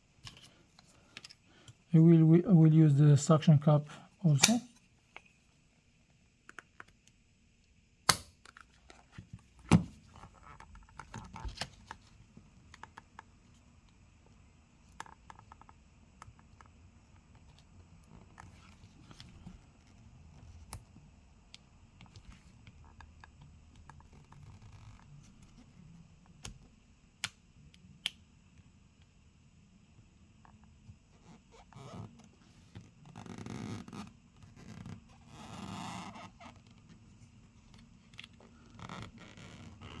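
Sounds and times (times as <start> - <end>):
sharp tool clicks: 4.4 - 4.7, 8.1 - 8.3.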